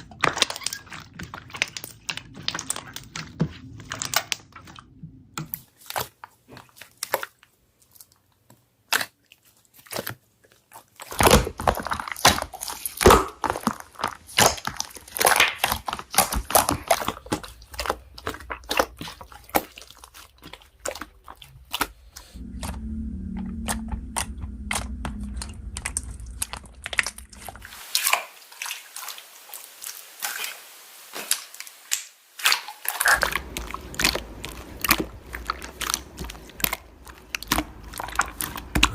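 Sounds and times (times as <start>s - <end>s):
slime crackling and popping: 0.1s - 4.7s, 11.0s - 22.0s, 31.2s - 38.9s.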